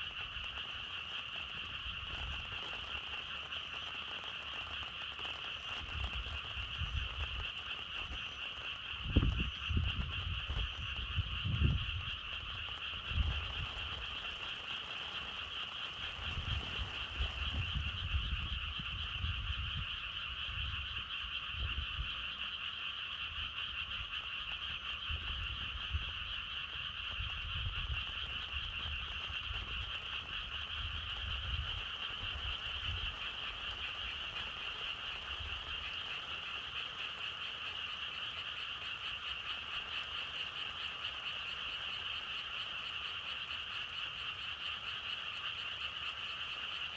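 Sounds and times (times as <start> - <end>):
frogs calling: 0.0 - 46.9
wind gusts rumbling: 5.8 - 22.2, 25.0 - 35.9.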